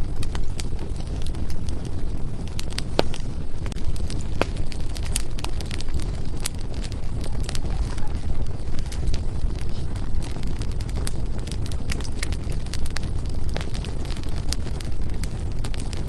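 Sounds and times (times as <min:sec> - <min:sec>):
firewood burning and crackling: 0:00.0 - 0:16.0.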